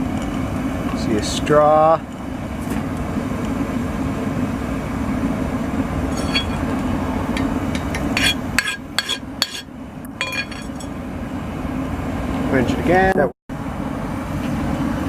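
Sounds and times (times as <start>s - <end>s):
steel on steel clinks: 6.1s - 6.7s, 8.2s - 10.9s.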